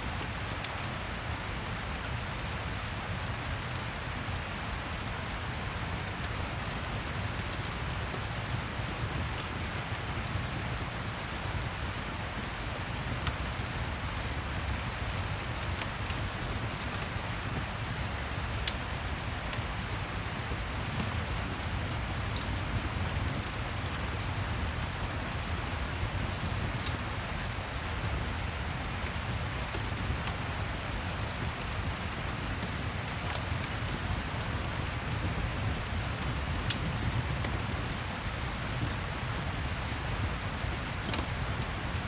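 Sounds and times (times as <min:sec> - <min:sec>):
steady rain hiss: 0:00.0 - 0:42.0
fireplace crackling: 0:22.6 - 0:42.0.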